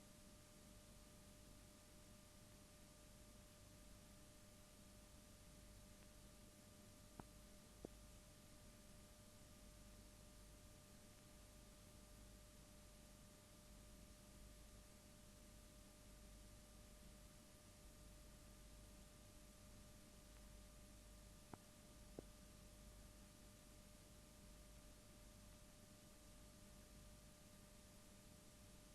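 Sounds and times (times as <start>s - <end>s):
faint steady hum and hiss: 0.0s - 28.9s.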